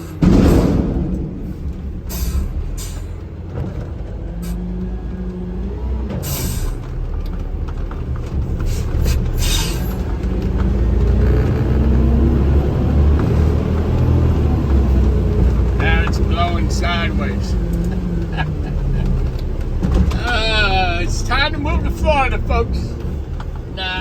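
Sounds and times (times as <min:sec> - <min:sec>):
truck diesel engine running: 0:00.0 - 0:24.0.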